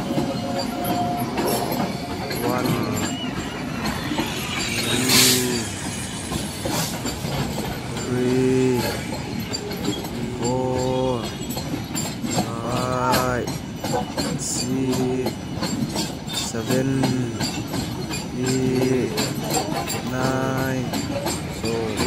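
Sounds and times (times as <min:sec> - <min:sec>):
freight train rumble and wheel clatter: 0:00.0 - 0:22.0.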